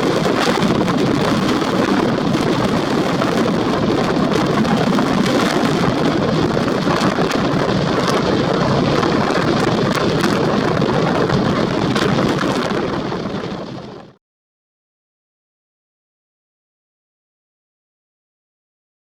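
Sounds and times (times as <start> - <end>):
rough sea: 0.0 - 14.2
storm wind: 0.0 - 14.2.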